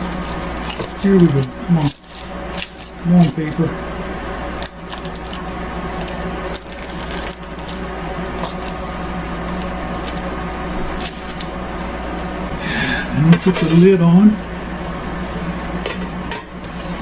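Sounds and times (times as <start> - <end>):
paper crinkling: 0.0 - 3.6, 4.6 - 8.8, 9.6 - 11.6
steady low hum: 0.0 - 17.0.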